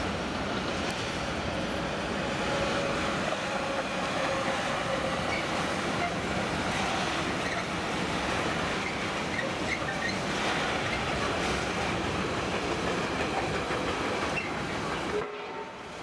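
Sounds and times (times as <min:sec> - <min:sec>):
clickety-clack over rail joints: 0:00.0 - 0:16.0
train wheels rumbling on rails: 0:00.0 - 0:16.0
faint wheel squeal: 0:08.8 - 0:10.2.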